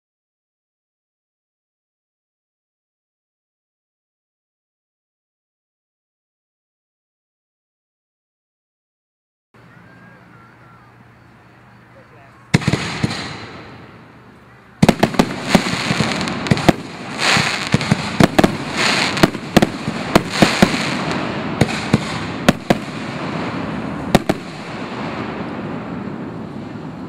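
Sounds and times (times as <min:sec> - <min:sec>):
firework bangs: 0:12.5 - 0:27.0
firework crackling hiss: 0:12.5 - 0:27.0.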